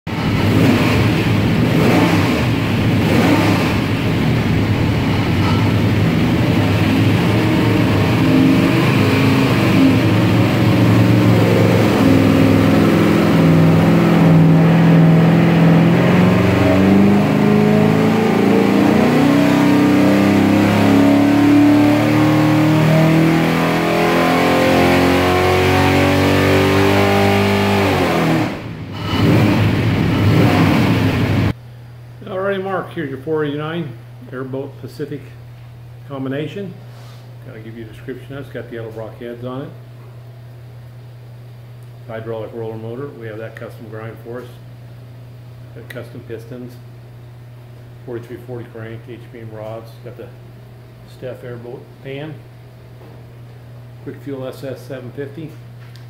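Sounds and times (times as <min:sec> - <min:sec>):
engine revving under load: 0:00.1 - 0:31.6.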